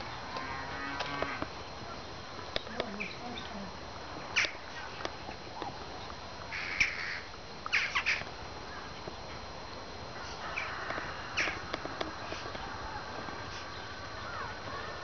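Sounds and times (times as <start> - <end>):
high-pitched animal calls: 0.2 - 1.4, 6.5 - 8.9, 10.2 - 11.7.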